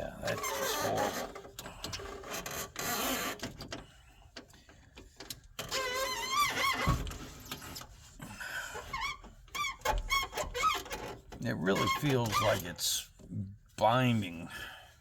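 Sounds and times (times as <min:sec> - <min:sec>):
glass scraping and squealing: 0:00.0 - 0:01.4, 0:05.7 - 0:07.0, 0:08.9 - 0:12.8
window crank turning: 0:00.0 - 0:03.8, 0:05.6 - 0:07.7.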